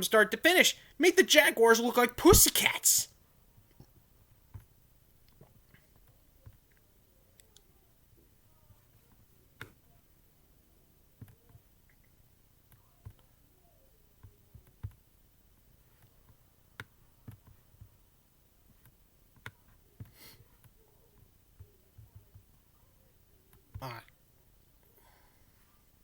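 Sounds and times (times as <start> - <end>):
faint clicks and knocks: 3.6 - 9.8, 14.2 - 18.0.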